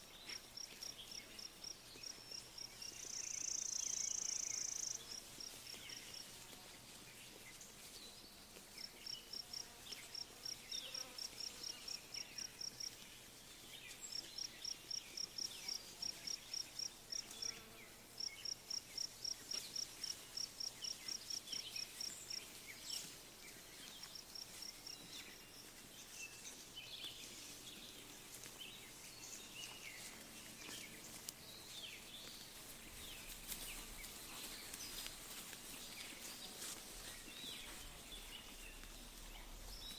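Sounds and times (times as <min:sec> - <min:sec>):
birds chirping: 0:16.4 - 0:39.9.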